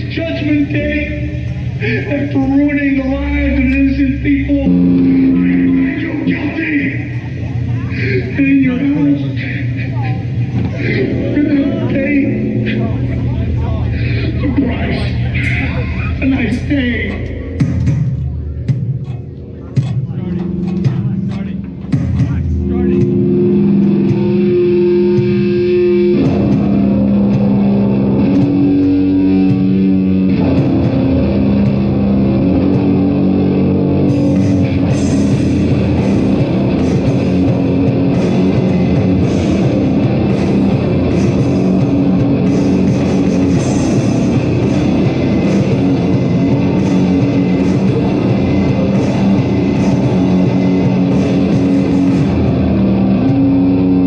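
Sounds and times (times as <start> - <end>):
distorted guitar and bass: 0.0 - 54.0
drums and cymbal hits: 0.0 - 54.0.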